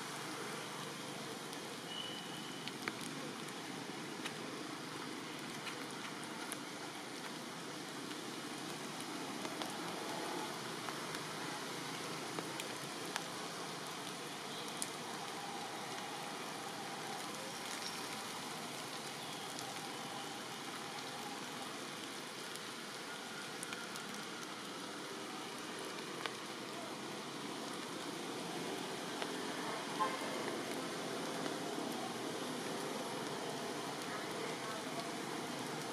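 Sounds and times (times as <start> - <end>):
raindrop ticks: 0.0 - 35.9
steady rain falling: 0.0 - 35.9.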